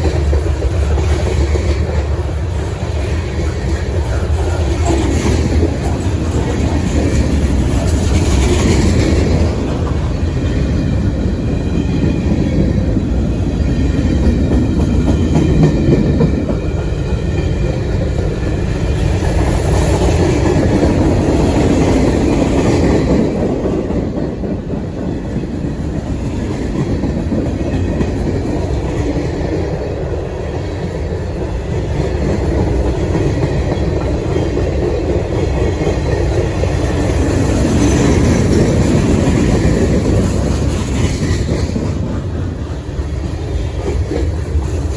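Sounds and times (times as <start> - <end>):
train wheels clacking on rails: 0.0 - 44.9.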